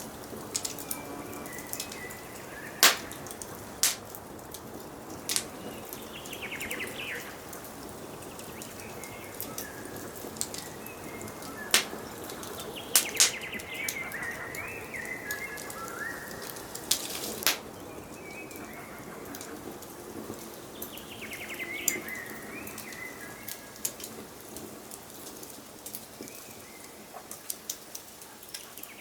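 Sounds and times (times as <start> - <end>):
fire popping: 0.0 - 29.0
songbirds singing: 0.0 - 29.0
wood fire crackling: 0.0 - 29.0.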